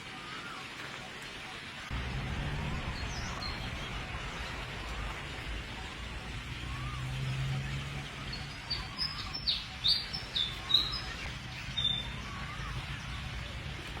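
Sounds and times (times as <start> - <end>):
steady outdoor hiss: 0.0 - 14.0
birds chirping: 1.5 - 14.0
rising and falling bird call: 6.5 - 13.1.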